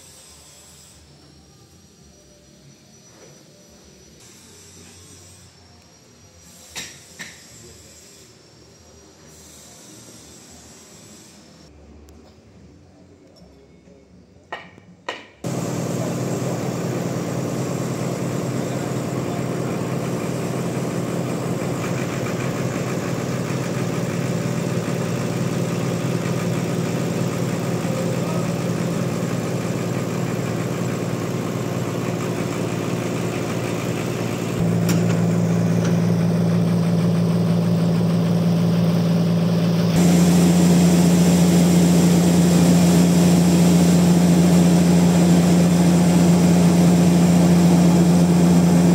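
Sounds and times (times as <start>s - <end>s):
sawmill machinery engine running: 15.4s - 48.9s.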